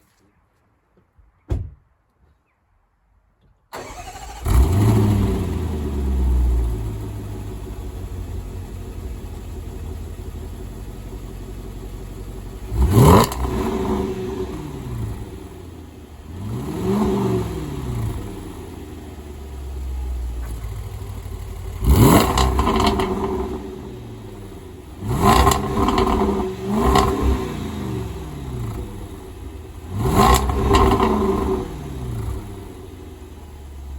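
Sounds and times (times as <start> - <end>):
car engine starting and idling: 3.7 - 33.9
engine revving: 3.8 - 9.8, 12.2 - 19.3, 21.0 - 33.1.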